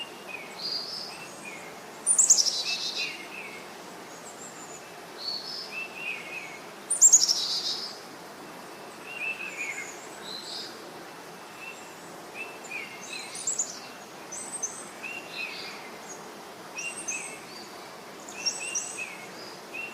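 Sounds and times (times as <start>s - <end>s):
background hiss: 0.0s - 19.9s
birds chirping and calling: 0.4s - 3.6s, 4.2s - 8.0s, 11.6s - 19.9s.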